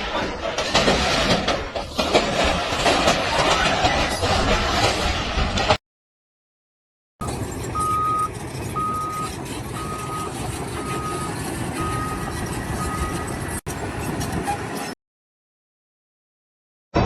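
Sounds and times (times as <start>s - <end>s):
low rumble of machinery: 7.2s - 14.5s
vehicle reversing alarm beeping: 7.5s - 13.4s.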